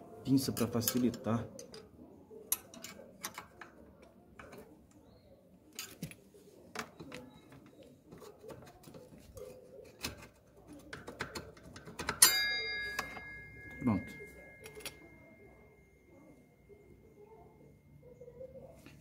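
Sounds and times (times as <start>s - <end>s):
metal tools clicking on brake caliper: 0.8s - 1.9s, 2.5s - 5.0s, 9.9s - 15.2s
ringing metallic clank: 12.2s - 18.2s.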